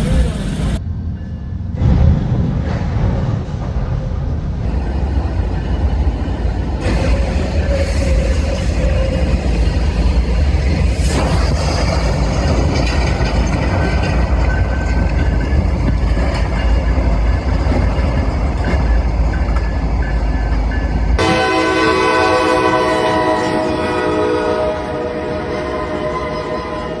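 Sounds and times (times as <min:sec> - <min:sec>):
train cars clanking: 0:00.0 - 0:27.0
train rumbling: 0:00.0 - 0:27.0
train horn blowing a chord: 0:21.2 - 0:27.0.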